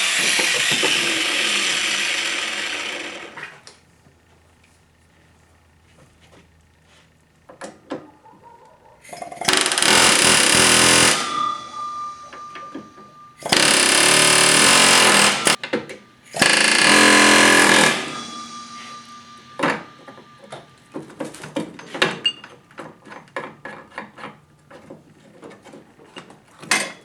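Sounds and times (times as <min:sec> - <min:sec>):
power tool bursts: 0:00.0 - 0:03.6, 0:09.1 - 0:22.5
thin whine: 0:09.1 - 0:24.1.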